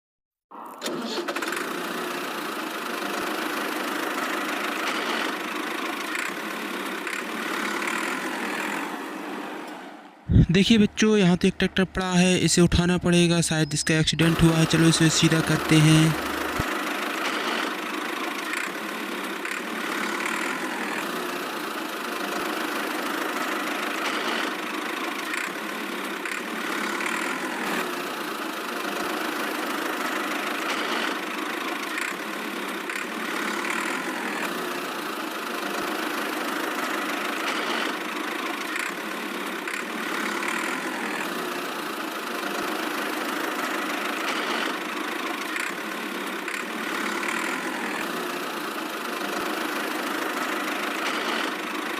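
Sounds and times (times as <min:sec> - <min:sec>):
tractor engine idling: 0:10.3 - 0:21.9.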